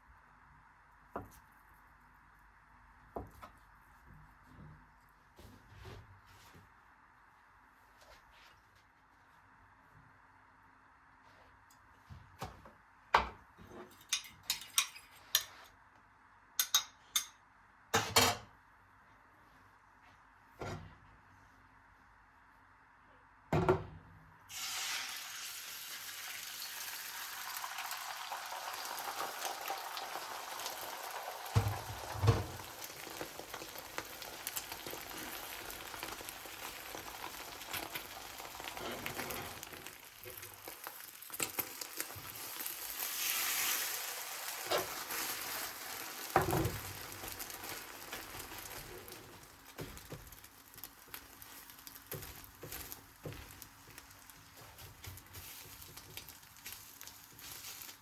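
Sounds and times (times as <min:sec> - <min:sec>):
food sizzling in hot oil: 0:24.5 - 0:58.0.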